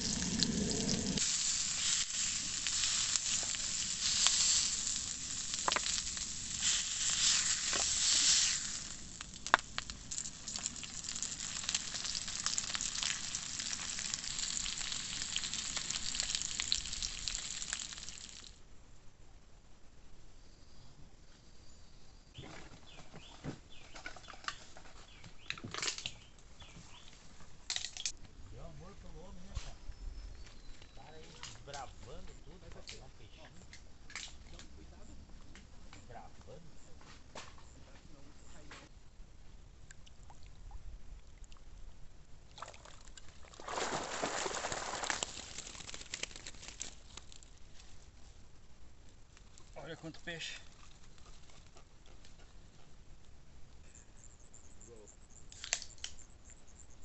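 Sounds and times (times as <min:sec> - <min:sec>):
small drips and clicks: 0:08.7 - 0:18.6, 0:39.8 - 0:40.6, 0:41.2 - 0:41.7, 0:44.7 - 0:47.5
bird chirping: 0:21.6 - 0:27.2, 0:29.7 - 0:33.6, 0:53.8 - 0:57.0
water sloshing and splashing: 0:42.5 - 0:46.9.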